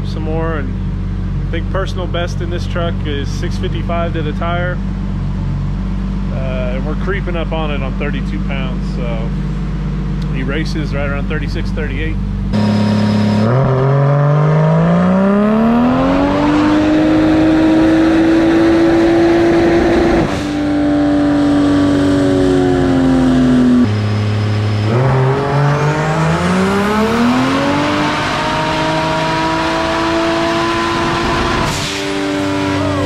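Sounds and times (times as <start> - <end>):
turbocharged engine revving on dyno: 12.5 - 33.0.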